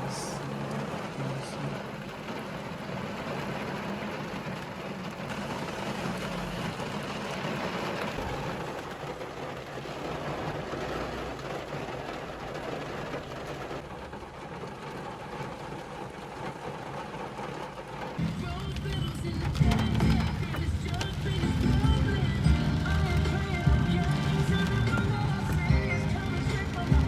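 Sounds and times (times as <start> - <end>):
heavy rain rushing: 0.0 - 27.0
low vehicle hum: 12.5 - 27.0.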